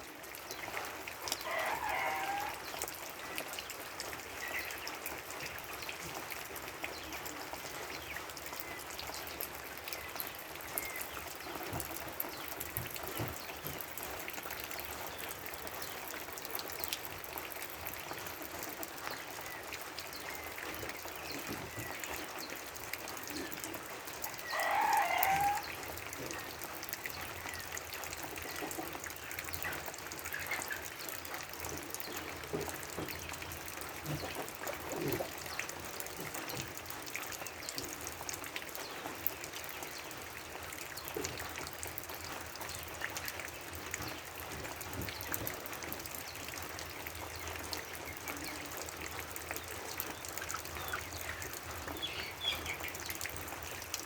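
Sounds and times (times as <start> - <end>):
rooster crowing: 1.4 - 2.6, 24.4 - 25.7.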